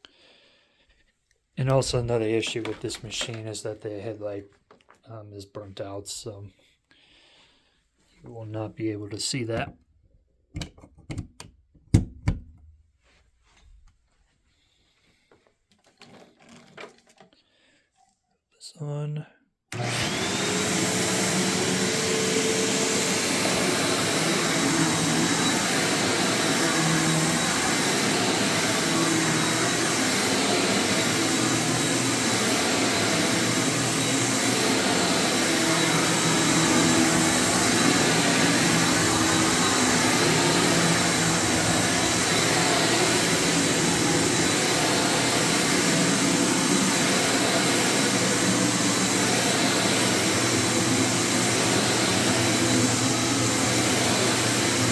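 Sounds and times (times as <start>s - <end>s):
vacuum cleaner running: 19.7s - 54.9s
high motor whine: 19.8s - 54.9s.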